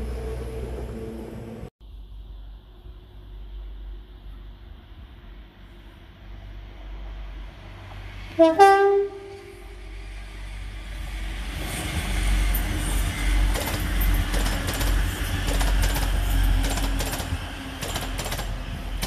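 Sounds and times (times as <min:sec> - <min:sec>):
train rumble: 0:00.0 - 0:19.0
wheels clicking over rail joints: 0:13.4 - 0:19.0.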